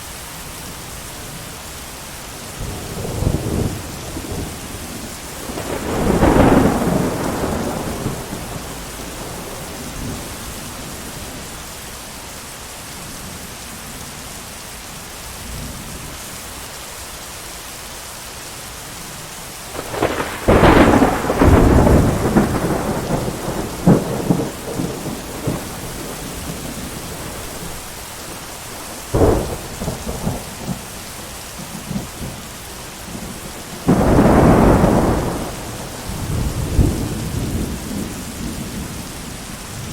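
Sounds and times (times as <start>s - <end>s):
heavy rain: 0.0s - 39.9s
rolling thunder: 2.6s - 11.4s, 19.7s - 32.5s, 33.1s - 39.9s
sharp thunder crack: 5.4s - 10.3s, 19.8s - 27.8s, 29.1s - 30.9s, 33.1s - 38.9s.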